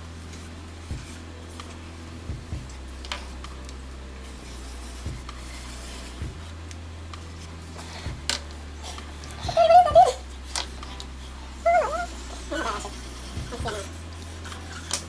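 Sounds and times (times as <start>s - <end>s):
steady low hum: 0.0s - 15.0s
pens scratching on paper: 2.5s - 6.6s, 7.2s - 15.0s.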